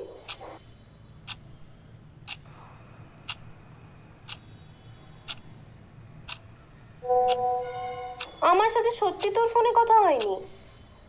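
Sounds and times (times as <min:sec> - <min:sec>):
clock ticking: 0:02.3 - 0:02.5, 0:03.3 - 0:03.5, 0:04.3 - 0:04.5, 0:05.2 - 0:05.5, 0:06.2 - 0:06.4, 0:07.1 - 0:07.5, 0:09.1 - 0:09.5.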